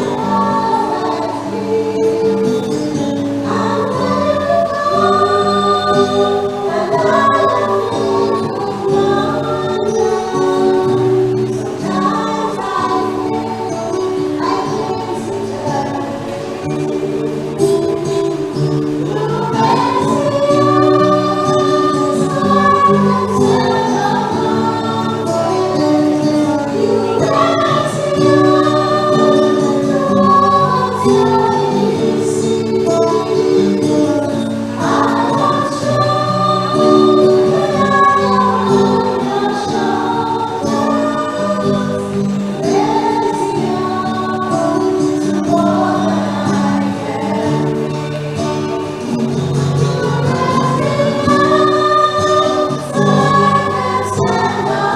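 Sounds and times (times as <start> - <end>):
choir singing a hymn: 0.0 - 54.9
musical accompaniment: 0.0 - 54.9.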